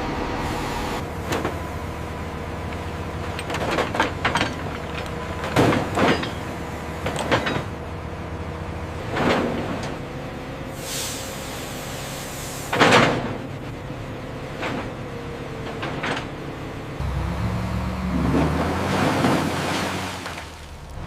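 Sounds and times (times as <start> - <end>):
deep engine note: 0.0 - 1.2, 17.0 - 19.3
heavy machinery droning: 0.0 - 21.0
hiss: 10.7 - 12.8.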